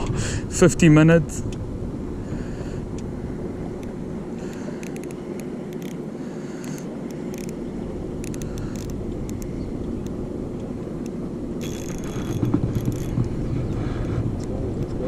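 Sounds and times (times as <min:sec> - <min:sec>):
engine running with low hum: 0:00.0 - 0:15.0
handling rustling and clicking: 0:04.5 - 0:06.0, 0:08.2 - 0:10.2.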